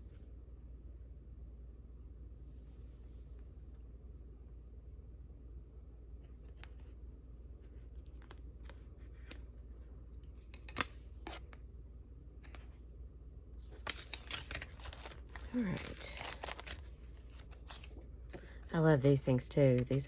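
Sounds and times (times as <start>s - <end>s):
paper cards tapping and rustling: 7.8s - 9.6s, 10.2s - 11.6s, 13.7s - 20.0s.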